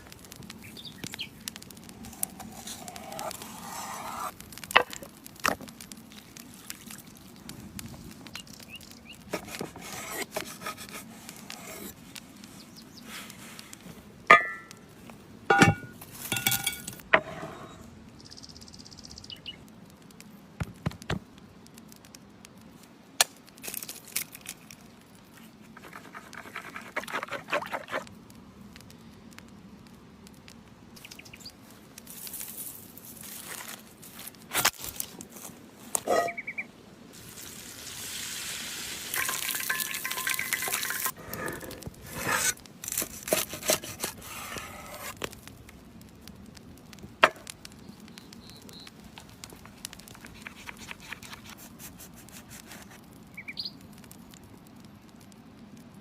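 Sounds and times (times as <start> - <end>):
rustling of ingredients: 0.0 - 14.2, 23.6 - 28.1, 31.0 - 36.2, 39.0 - 45.5, 48.6 - 53.2
utensils and dishes clinking: 39.2 - 41.2.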